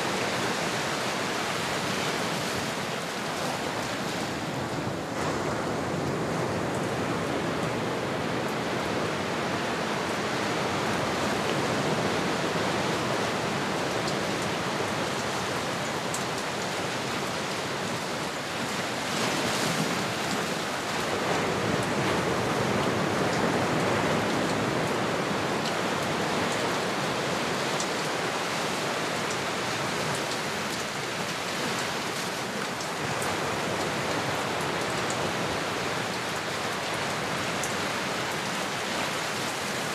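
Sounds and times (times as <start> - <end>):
ocean waves rushing: 0.0 - 39.9.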